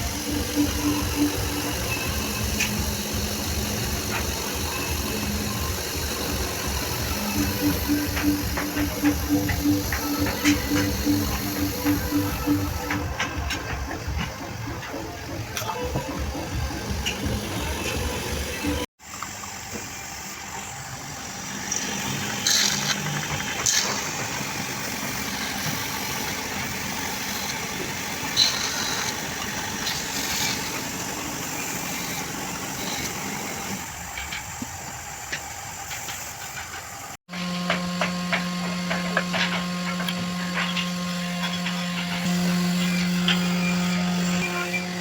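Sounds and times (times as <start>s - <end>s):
electric motor hum: 0.0s - 36.1s, 37.3s - 45.0s
machine motor running: 0.0s - 45.0s.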